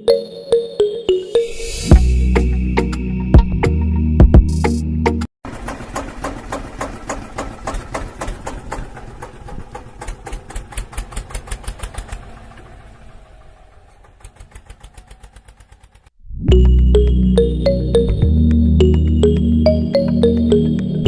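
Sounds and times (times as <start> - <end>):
small pump engine knocking: 5.4 - 16.2.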